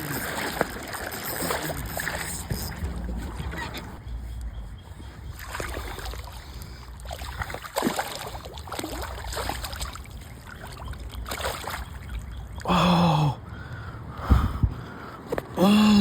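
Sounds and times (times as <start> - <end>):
water splashing: 0.0 - 4.0, 5.4 - 12.7
wind rumble on microphone: 1.7 - 7.7, 13.6 - 15.2.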